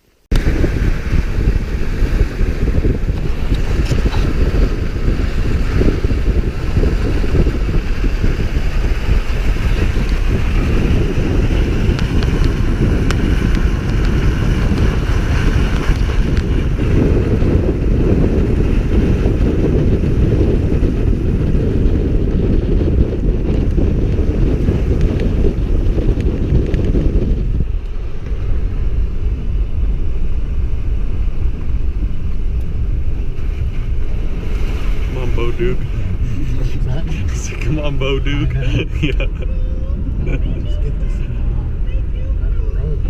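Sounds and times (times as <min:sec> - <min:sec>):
moving vehicle noise: 0:00.0 - 0:43.0
wind buffeting microphone: 0:00.3 - 0:43.0.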